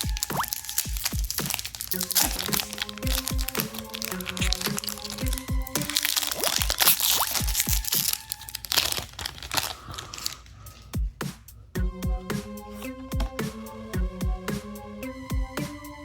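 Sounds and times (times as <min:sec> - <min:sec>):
electronic music with kick drum: 0:00.0 - 0:01.6, 0:02.2 - 0:05.9, 0:07.4 - 0:08.0, 0:11.0 - 0:16.0
foil wrapper crinkling and tearing: 0:00.0 - 0:10.9.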